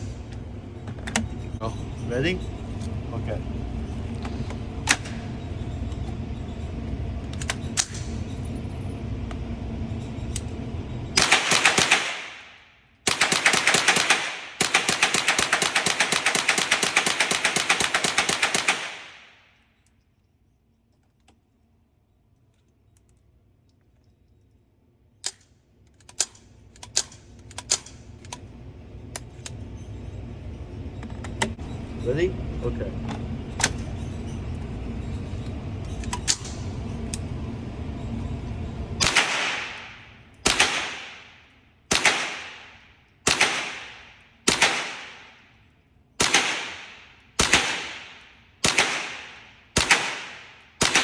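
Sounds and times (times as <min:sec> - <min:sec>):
rapid rifle gunfire: 0:11.2 - 0:19.4, 0:39.0 - 0:45.4, 0:46.2 - 0:51.0.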